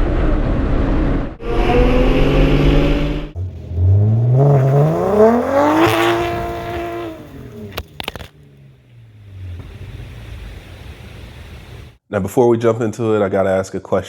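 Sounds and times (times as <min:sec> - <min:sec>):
car engine revving: 0:01.1 - 0:12.0.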